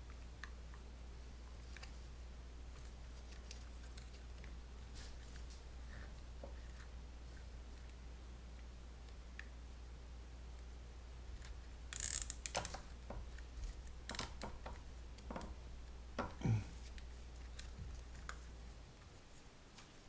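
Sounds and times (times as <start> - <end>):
zip tie ratchet clicking: 11.9 - 12.8.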